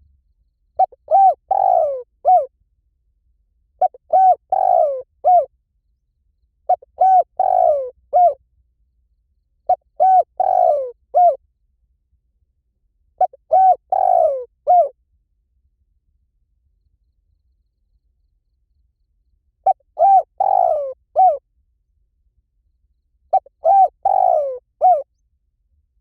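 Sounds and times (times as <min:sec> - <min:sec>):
dove cooing: 0:00.8 - 0:02.5, 0:03.8 - 0:05.5, 0:06.7 - 0:08.4, 0:09.7 - 0:11.4, 0:13.2 - 0:14.9, 0:19.6 - 0:21.4, 0:23.3 - 0:25.1.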